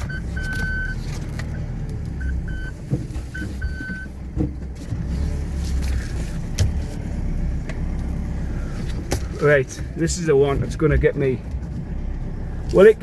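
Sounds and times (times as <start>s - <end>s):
high reversing beeps: 0.0s - 1.6s, 2.2s - 4.1s
engine running at low revs: 0.0s - 13.0s.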